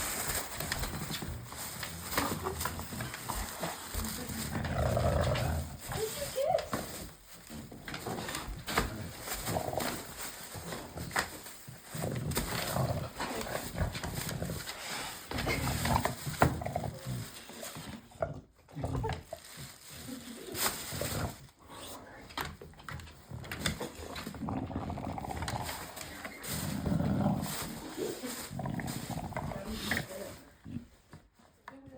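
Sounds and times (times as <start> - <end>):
dog growling: 0.6 - 5.9, 7.9 - 11.0, 11.9 - 19.4, 23.3 - 31.0.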